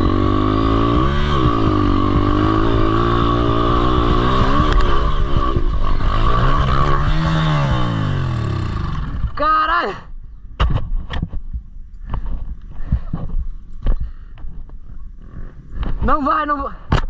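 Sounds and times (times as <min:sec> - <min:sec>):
dirt bike engine revving: 0:00.0 - 0:09.5.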